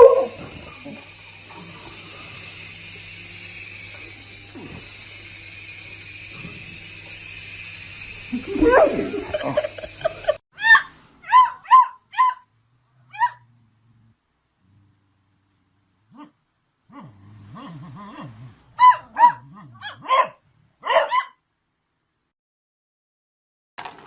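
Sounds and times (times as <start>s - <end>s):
dog yipping: 0.0s - 0.4s, 8.5s - 9.4s, 10.6s - 12.5s, 13.1s - 13.4s, 18.8s - 21.4s
steady background hum: 0.0s - 10.4s.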